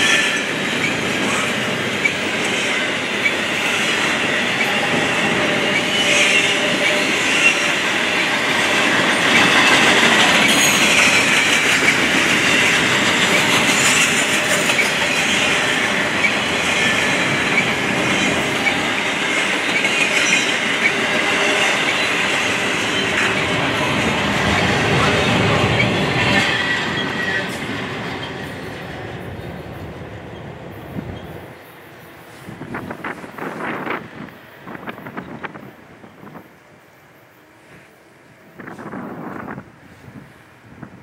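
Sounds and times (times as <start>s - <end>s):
train wheels rumbling and rattling: 0.0s - 36.6s
clacks at rail joints: 8.8s - 29.9s.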